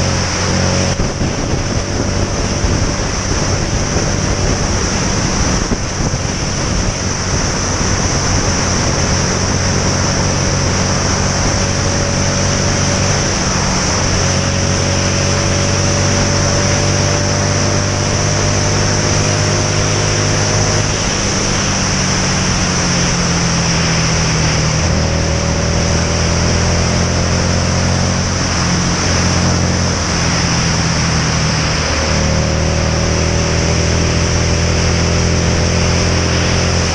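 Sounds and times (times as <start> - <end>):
motorcycle engine running: 0.0 - 36.9
wind noise on microphone: 0.0 - 36.9.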